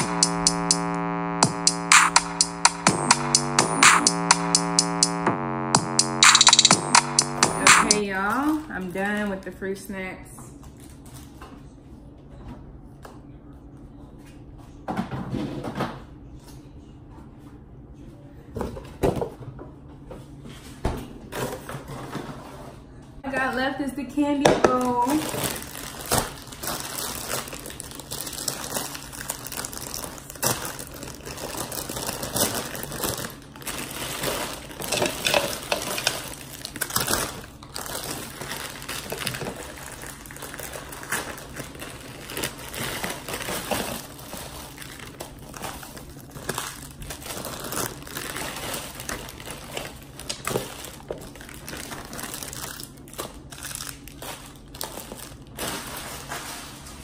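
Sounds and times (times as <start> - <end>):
plastic candy wrappers crinkling: 24.9 - 56.8.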